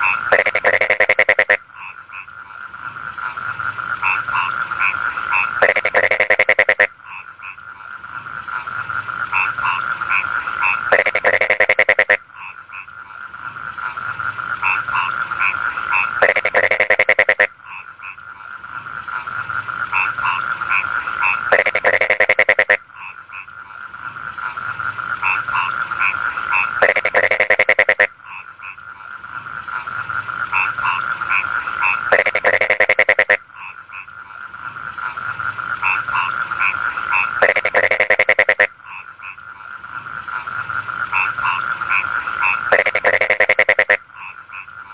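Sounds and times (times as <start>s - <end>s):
frog chorus: 0.0s - 44.9s
loud rattling frog croak: 0.0s - 44.9s.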